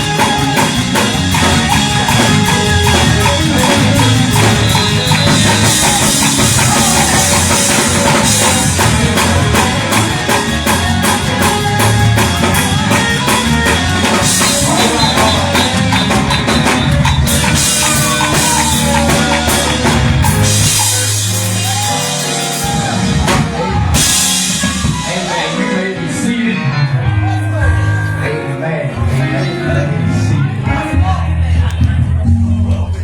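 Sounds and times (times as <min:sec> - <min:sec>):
drum kit with rapid cymbals: 0:00.0 - 0:25.8
live band music: 0:00.0 - 0:33.0.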